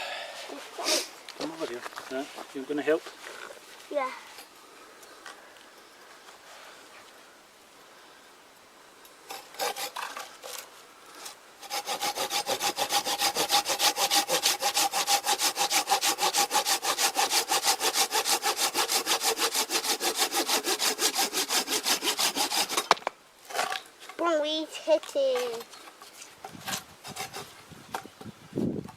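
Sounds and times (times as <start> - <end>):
hand saw cutting wood: 9.3 - 23.8, 26.4 - 28.0.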